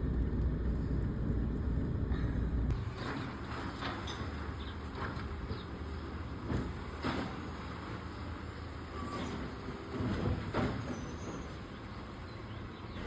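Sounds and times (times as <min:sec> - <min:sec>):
garbage truck engine rumbling: 0:00.0 - 0:13.0.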